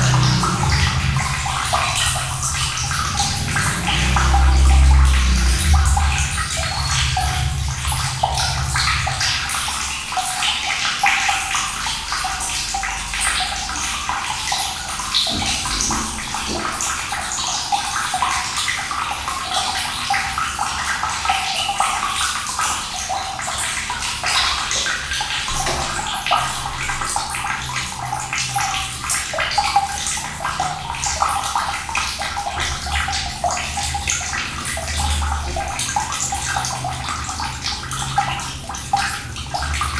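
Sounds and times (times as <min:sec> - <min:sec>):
low rumble: 0:00.0 - 0:10.4
water pouring and splashing: 0:00.0 - 0:39.9.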